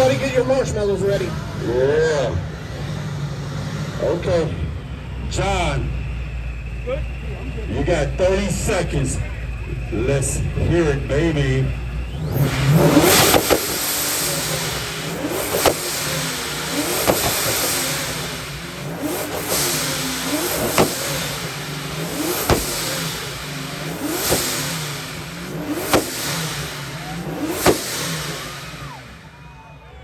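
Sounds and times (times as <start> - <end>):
car engine revving hard: 0.0 - 29.3
exhaust pops and bangs: 10.2 - 29.1.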